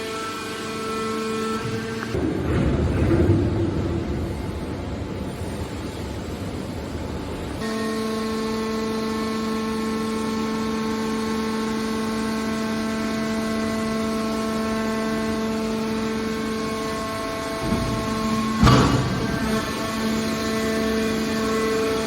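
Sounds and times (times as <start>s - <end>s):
factory machine pitched hum: 0.0s - 22.0s
machinery noise: 14.1s - 22.0s.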